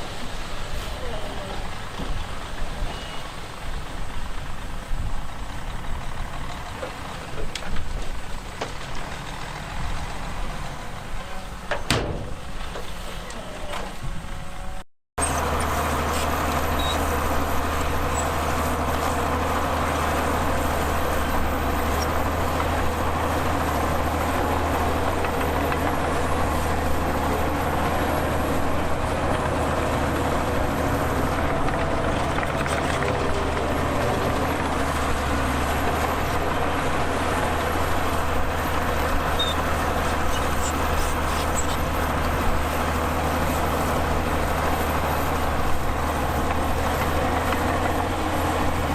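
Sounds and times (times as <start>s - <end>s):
heavy diesel engine droning: 0.0s - 48.9s.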